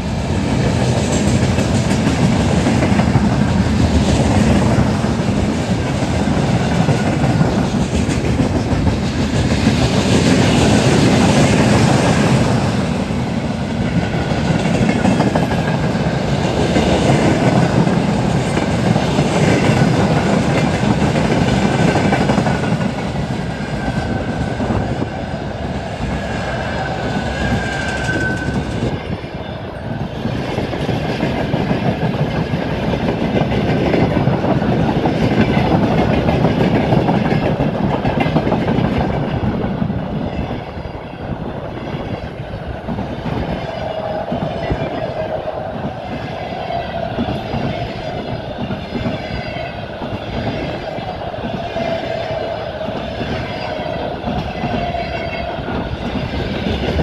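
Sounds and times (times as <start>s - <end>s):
freight train wheels clattering: 0.0s - 57.0s
thin high squeal: 26.6s - 28.7s.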